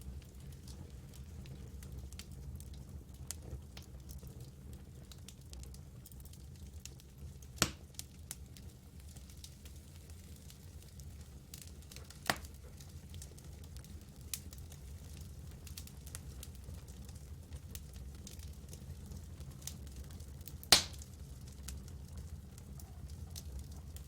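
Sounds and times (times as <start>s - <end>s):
campfire crackling: 0.0s - 24.0s
fire pops: 7.5s - 18.8s, 19.4s - 24.0s.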